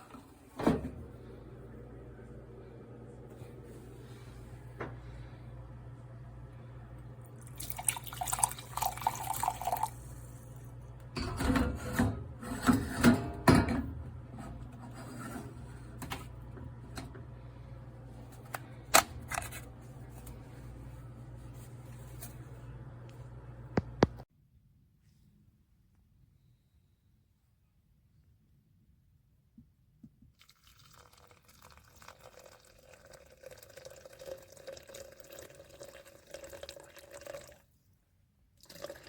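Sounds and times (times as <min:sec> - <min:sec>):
steady low hum: 0:00.4 - 0:24.2.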